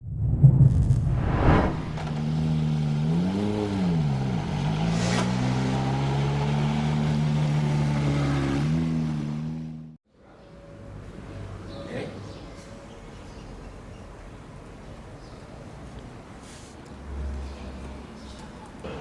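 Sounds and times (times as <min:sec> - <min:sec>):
two-stroke motorcycle engine: 0:02.2 - 0:10.0.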